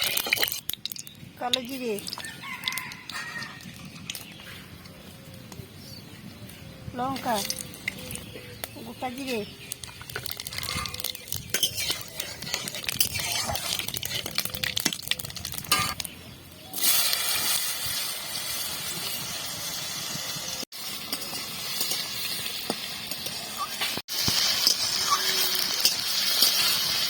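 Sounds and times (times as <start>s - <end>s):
seeds crackling and spitting in oil: 0.0s - 4.5s, 7.0s - 19.2s, 20.8s - 27.0s
steady loud sizzle: 16.8s - 27.0s.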